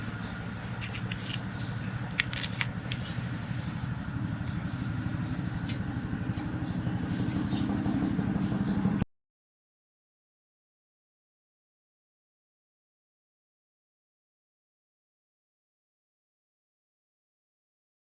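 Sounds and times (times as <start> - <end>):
wood fire roaring in stove: 0.0 - 9.0.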